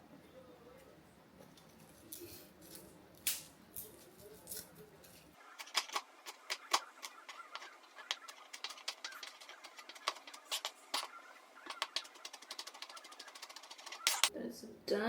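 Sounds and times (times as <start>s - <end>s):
knife scraping cutting board: 4.4s - 14.3s.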